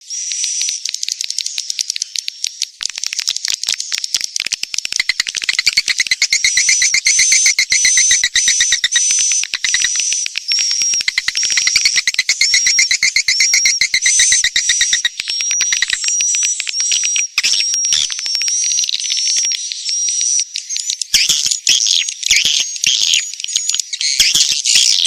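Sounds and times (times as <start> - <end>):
rapid dry clicking: 0.4 - 19.7
high twittering bird chirps: 3.8 - 25.0.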